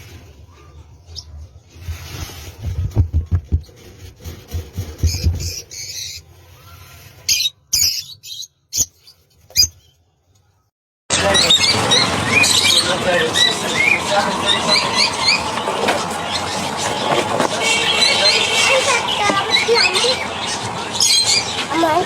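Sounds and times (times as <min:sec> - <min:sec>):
birds calling: 0:04.8 - 0:10.0, 0:11.1 - 0:22.0.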